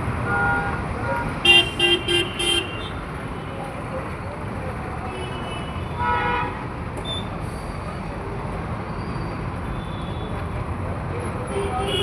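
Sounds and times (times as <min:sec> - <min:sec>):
traffic rumble: 0:00.0 - 0:12.0
car horn honk: 0:01.4 - 0:02.9
faint car horns: 0:01.4 - 0:02.9.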